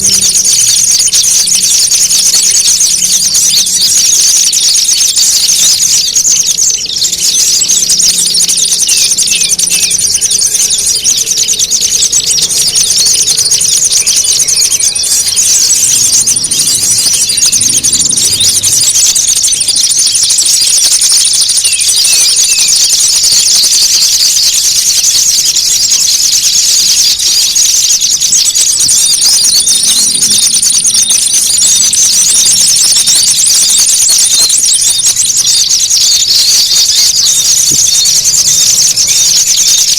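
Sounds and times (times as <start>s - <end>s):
songbirds chattering and squeaking: 0.0s - 39.9s.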